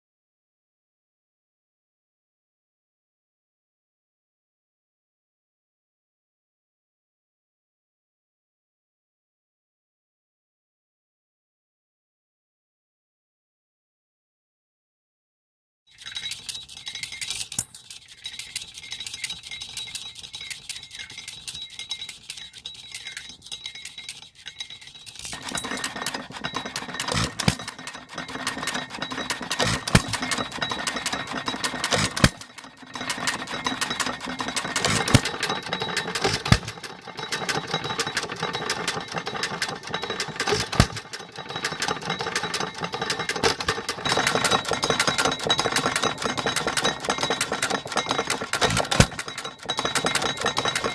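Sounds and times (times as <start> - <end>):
engine running with mechanical clatter: 16.0 - 50.9.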